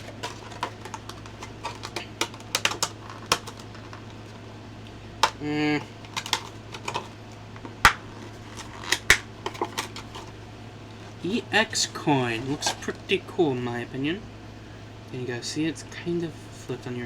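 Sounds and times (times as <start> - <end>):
small items clicking and tapping: 0.0 - 4.1, 6.1 - 8.0
person humming briefly: 5.4 - 5.9.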